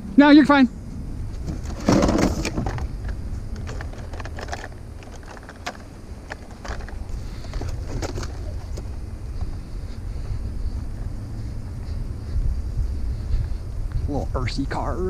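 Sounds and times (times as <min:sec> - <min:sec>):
steady low rumble: 0:00.0 - 0:15.0
small scrap items clinking: 0:03.6 - 0:08.8.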